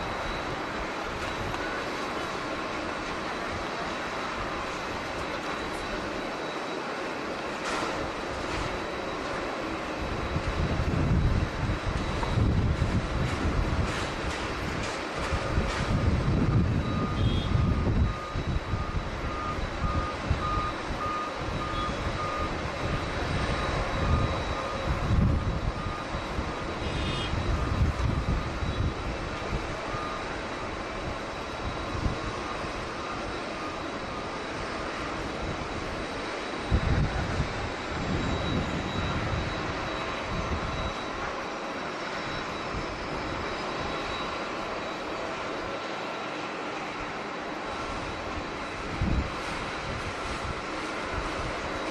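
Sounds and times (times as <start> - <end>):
jet engine roar: 0.0 - 51.9
vehicle reversing beeper: 0.0 - 51.9
wind buffeting microphone: 8.0 - 41.4, 47.7 - 51.9.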